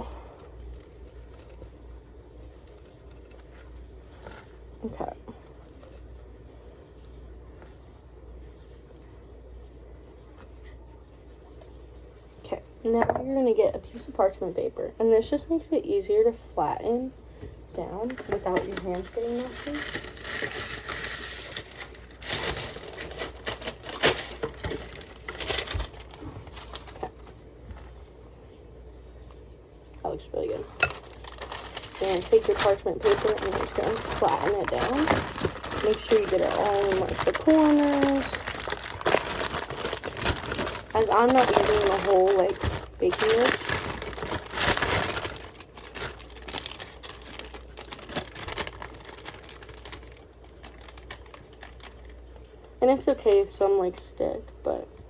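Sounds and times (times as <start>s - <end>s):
parchment paper tearing and crinkling: 18.1s - 28.0s, 30.4s - 52.2s.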